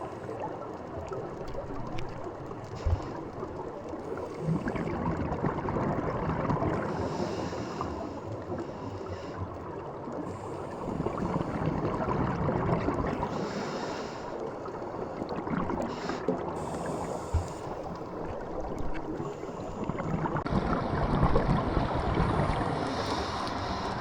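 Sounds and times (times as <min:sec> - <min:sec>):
water rushing and splashing: 0:09.5 - 0:24.0.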